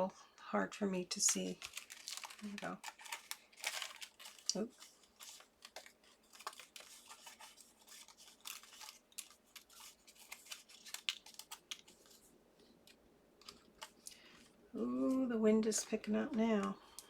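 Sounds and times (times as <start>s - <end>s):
card stock scratching and ticking: 1.2s - 12.2s.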